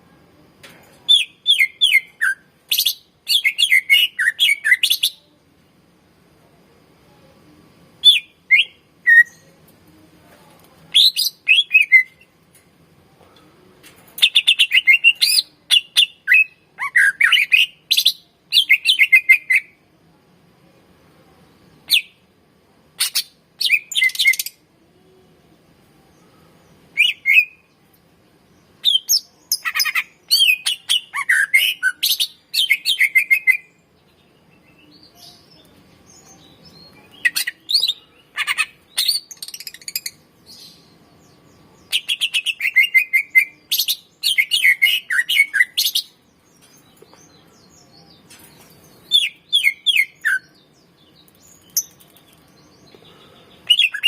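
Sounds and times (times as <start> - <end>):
bird singing chirps and trills: 28.7 - 54.0.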